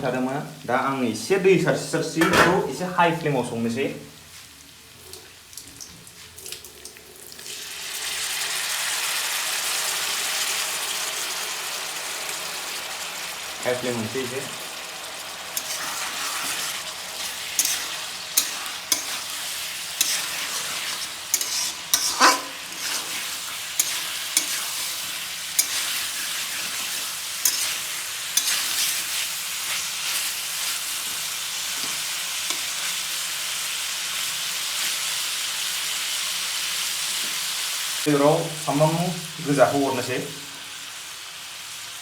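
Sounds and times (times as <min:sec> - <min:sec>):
food sizzling in a pan: 0:00.0 - 0:42.0
spatula scraping a pan: 0:15.2 - 0:35.2.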